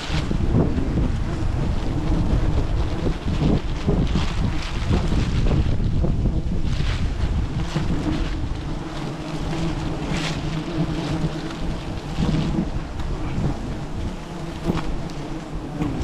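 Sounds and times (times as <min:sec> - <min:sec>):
wind buffeting microphone: 0:00.0 - 0:16.0
steady low hum: 0:07.1 - 0:16.0.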